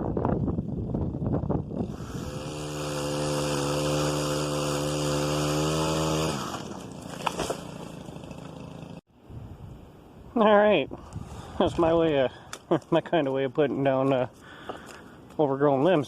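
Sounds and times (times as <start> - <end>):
small engine running: 1.7 - 9.0.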